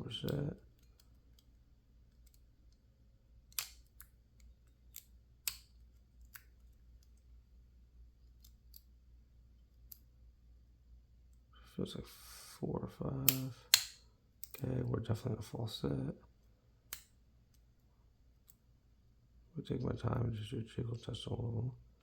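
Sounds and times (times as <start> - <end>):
lock pick clicking in padlock: 3.5 - 6.5, 13.3 - 14.6.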